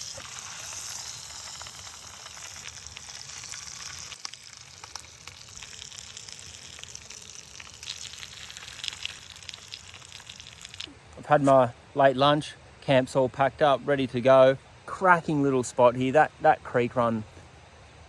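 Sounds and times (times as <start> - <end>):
fish sizzling in a pan: 0.0 - 10.9
crackles of frying: 0.0 - 11.4.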